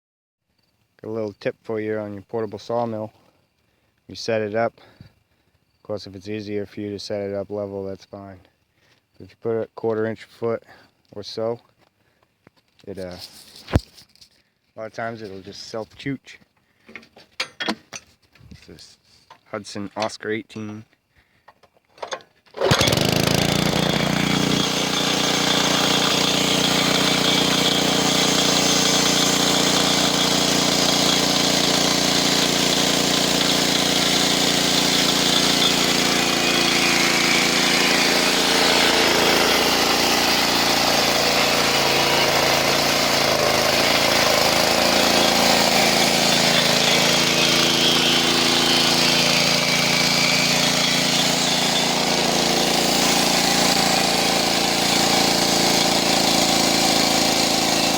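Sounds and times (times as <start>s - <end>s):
bandsaw sawmill running: 22.0s - 57.9s.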